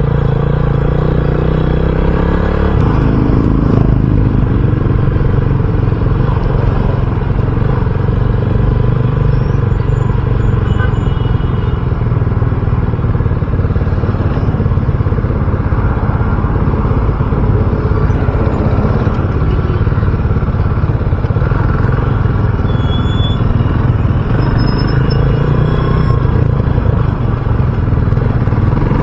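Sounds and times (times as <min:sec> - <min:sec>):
motorcycle engine cruising: 0:00.0 - 0:29.0.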